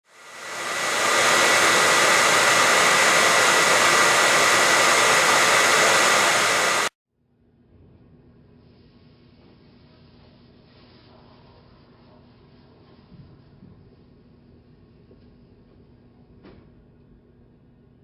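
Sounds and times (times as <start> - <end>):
hair dryer blowing: 0.0 - 7.0.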